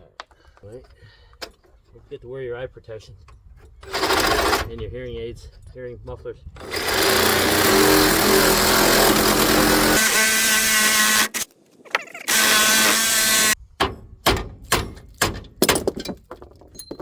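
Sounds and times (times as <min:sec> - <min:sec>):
reciprocating saw cutting bolt: 0:06.6 - 0:13.6.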